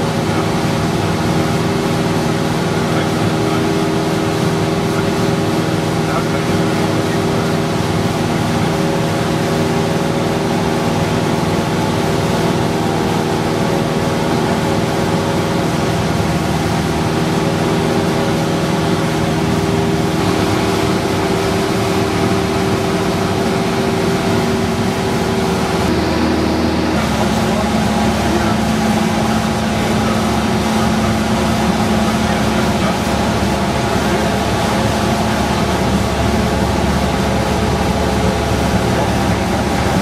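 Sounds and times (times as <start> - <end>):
propeller plane engine droning: 0.0 - 40.0.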